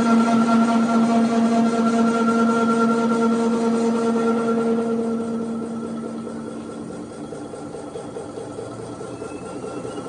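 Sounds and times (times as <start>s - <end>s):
workshop machine humming: 0.0s - 10.0s.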